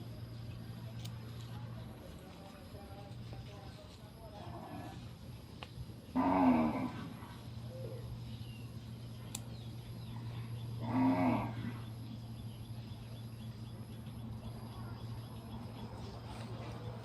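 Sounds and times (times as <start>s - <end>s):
steady low hum: 0.0s - 17.0s
cow mooing: 6.2s - 7.2s, 10.8s - 11.8s.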